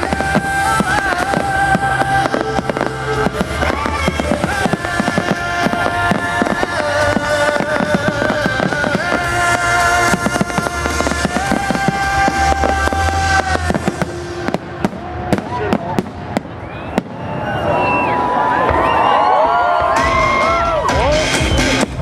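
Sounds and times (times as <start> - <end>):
music with long held notes: 0.0 - 16.1
firework bangs and crackles: 0.0 - 20.4.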